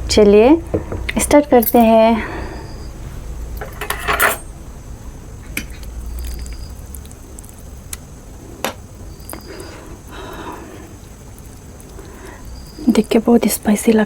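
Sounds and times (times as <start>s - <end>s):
utensils clinking on a dish: 3.6s - 4.5s.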